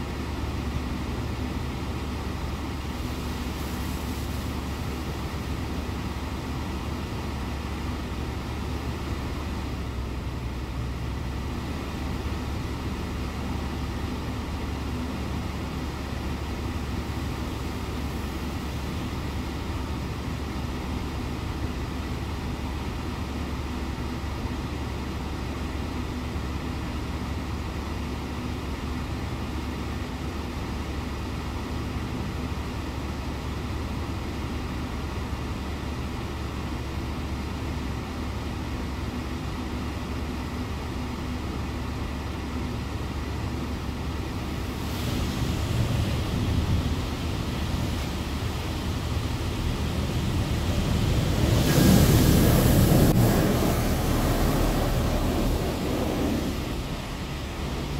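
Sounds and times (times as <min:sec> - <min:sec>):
car wash machinery drone: 0:00.0 - 0:57.9
loud rushing noise: 0:44.6 - 0:57.9.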